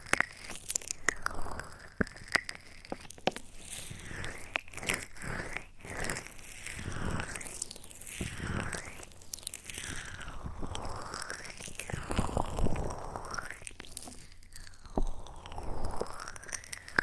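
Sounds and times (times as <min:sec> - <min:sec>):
crisp clicks and crackles: 0:00.0 - 0:17.0.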